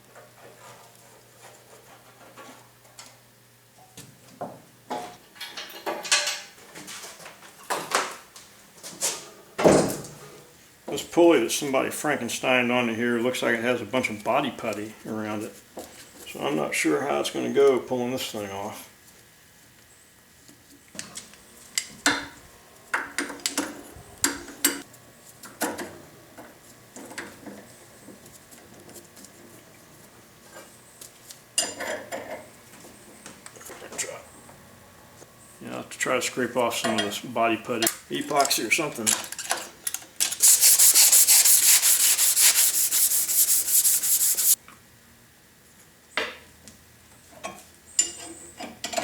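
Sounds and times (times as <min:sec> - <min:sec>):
hand scraping putty off metal: 0:40.3 - 0:44.6.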